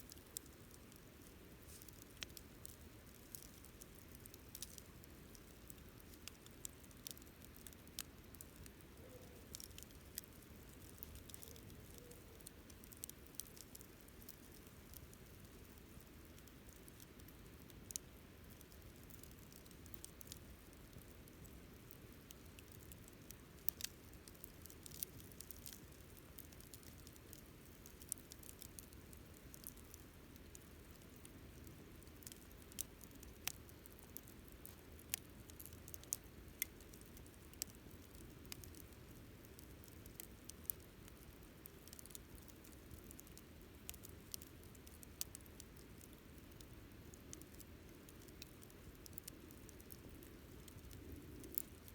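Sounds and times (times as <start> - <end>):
campfire crackling and popping: 0.0 - 51.9
low rumble of burning fire: 0.0 - 51.9.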